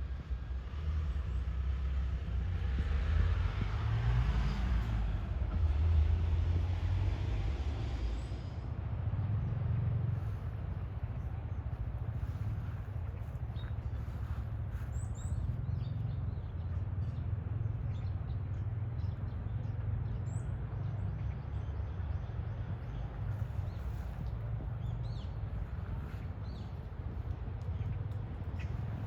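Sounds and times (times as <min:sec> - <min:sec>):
steady low rumble: 0:07.6 - 0:29.0
small birds chirping: 0:11.1 - 0:29.0.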